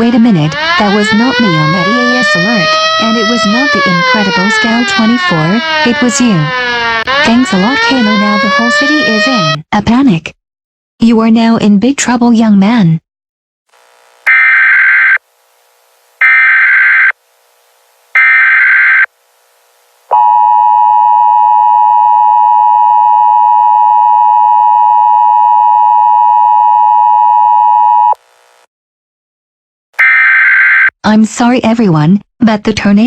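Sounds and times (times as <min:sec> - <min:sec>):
screeching data bursts: 0:14.3 - 0:15.2, 0:16.2 - 0:17.2, 0:18.2 - 0:19.1.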